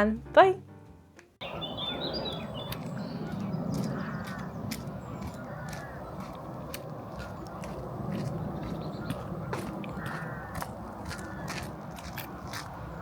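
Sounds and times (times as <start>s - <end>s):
harsh bird calls: 1.4s - 6.5s, 7.1s - 11.7s.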